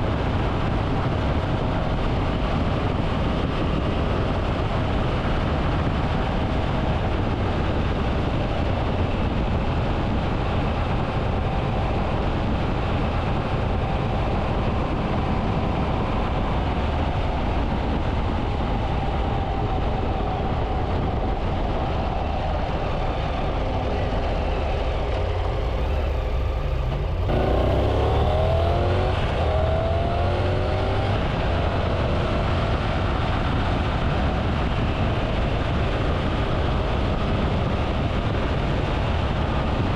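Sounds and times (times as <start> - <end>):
road and wind noise: 0.0 - 39.9
motorcycle engine running: 23.2 - 39.6.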